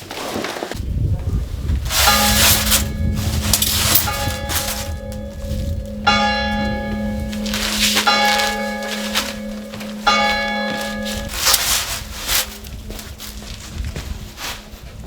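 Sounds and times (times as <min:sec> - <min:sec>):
steady low hum: 0:00.9 - 0:15.0
large bell tolling: 0:01.8 - 0:13.8.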